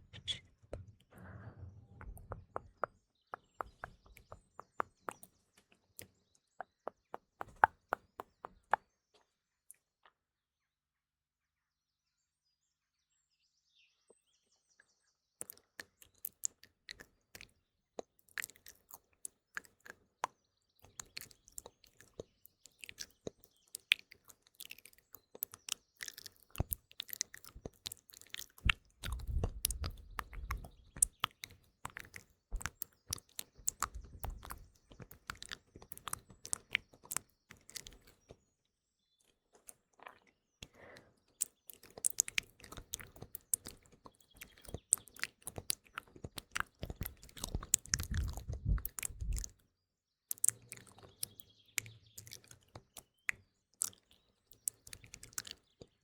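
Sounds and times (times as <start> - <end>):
faint birdsong: 0.0 - 56.0
wet mouth clicks and smacks: 3.4 - 8.8, 15.4 - 20.0, 20.8 - 38.3, 39.6 - 49.6, 50.3 - 56.0.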